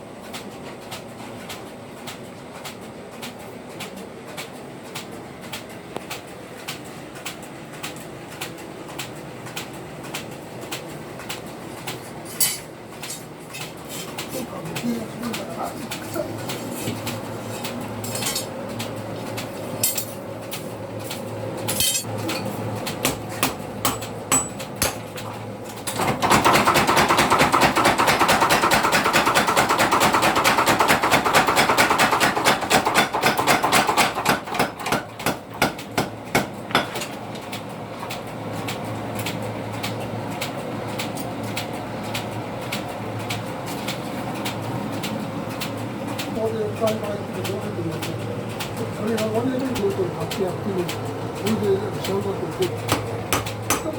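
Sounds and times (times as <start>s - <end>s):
hammer striking steel on anvil: 21.8s - 22.1s, 23.0s - 25.0s, 52.9s - 53.9s.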